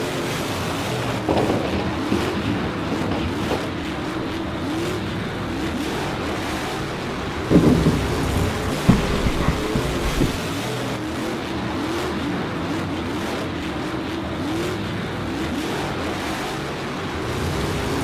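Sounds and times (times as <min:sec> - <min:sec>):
steady rushing noise: 0:00.0 - 0:11.2
race car engines revving: 0:00.0 - 0:18.0.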